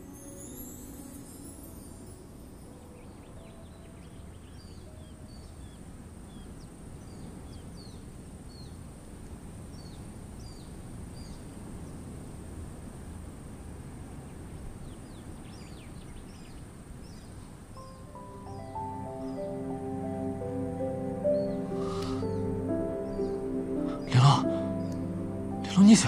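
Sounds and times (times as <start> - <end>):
low background hiss: 0.0 - 26.0
small birds chirping: 9.6 - 12.1, 14.2 - 26.0.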